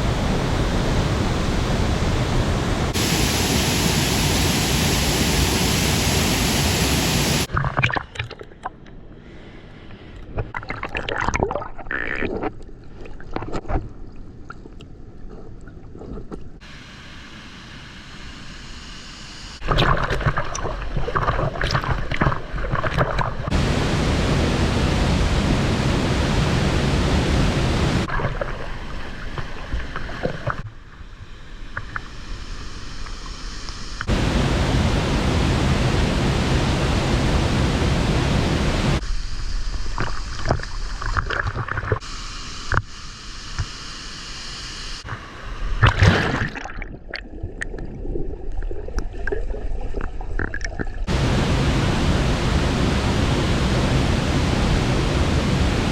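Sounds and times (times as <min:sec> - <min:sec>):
waterfall rushing: 0:00.8 - 0:07.5, 0:23.5 - 0:28.1, 0:34.1 - 0:39.0, 0:51.1 - 0:55.9.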